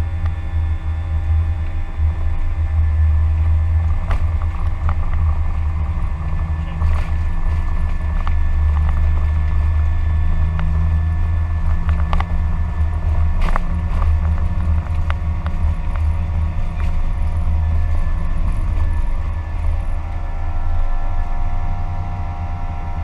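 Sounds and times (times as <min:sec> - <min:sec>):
cockpit low rumble: 0:00.0 - 0:23.0
constant tones: 0:00.0 - 0:23.0.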